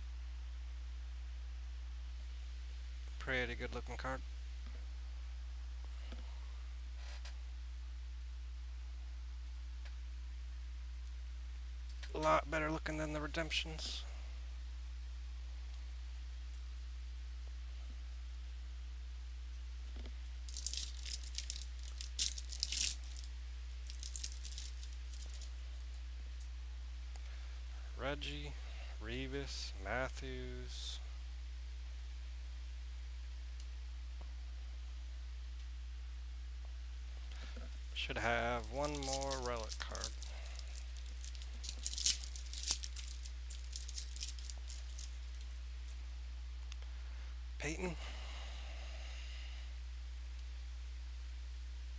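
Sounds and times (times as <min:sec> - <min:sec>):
low electrical hum: 0:00.0 - 0:51.9
card packaging crinkling: 0:20.5 - 0:25.5, 0:38.2 - 0:45.6.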